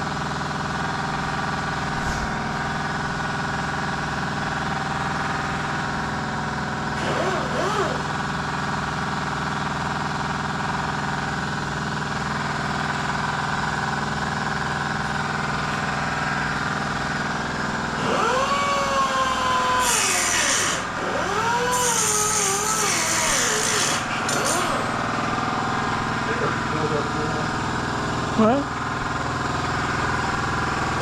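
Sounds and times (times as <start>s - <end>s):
engine-like hum: 0.0s - 31.0s
angle grinder cutting steel: 7.0s - 8.1s, 18.0s - 25.3s.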